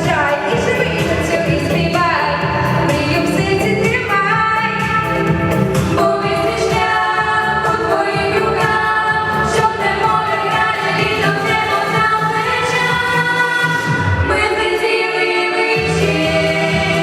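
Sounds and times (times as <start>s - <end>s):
backing track: 0.0s - 17.0s
voices singing long notes: 6.0s - 17.0s.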